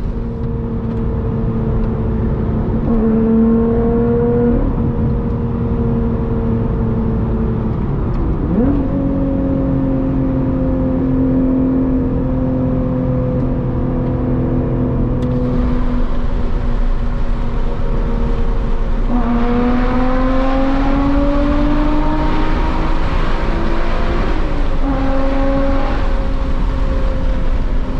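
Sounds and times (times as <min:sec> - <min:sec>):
car engine and exhaust: 0:00.0 - 0:27.9.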